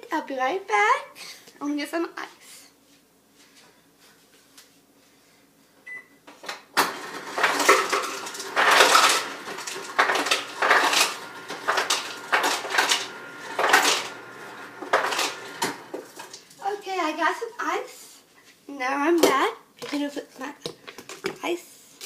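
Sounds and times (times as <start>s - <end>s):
ice cubes rattling: 7.0s - 16.4s.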